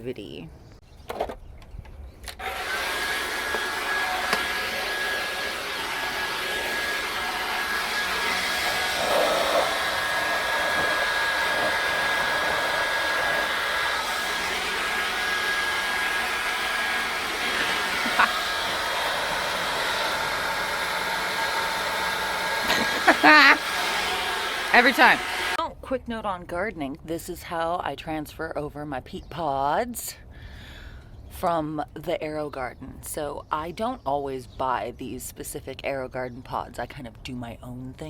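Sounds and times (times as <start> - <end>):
small motor whining: 2.3 - 25.6.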